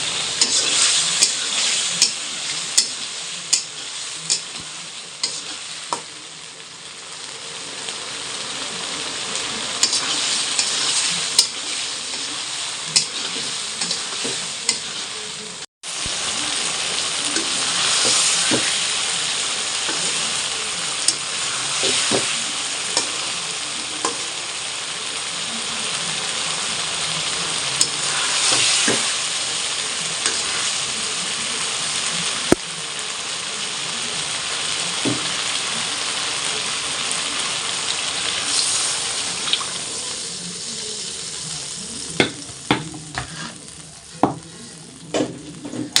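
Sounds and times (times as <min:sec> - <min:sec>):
food sizzling in a pan: 0:00.0 - 0:46.0
spatula scraping and tapping pan: 0:00.4 - 0:06.1, 0:09.8 - 0:15.1, 0:42.2 - 0:43.6.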